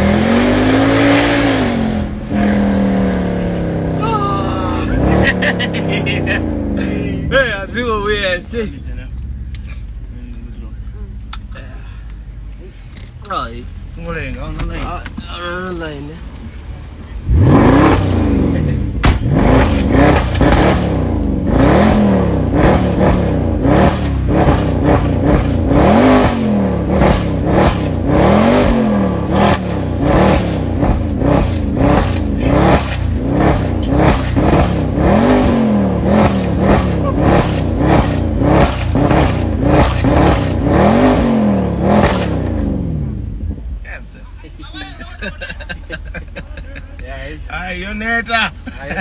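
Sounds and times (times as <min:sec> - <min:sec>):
car engine revving hard: 0:00.0 - 0:08.2, 0:17.2 - 0:43.6
sharp exhaust cracks: 0:19.0 - 0:43.0.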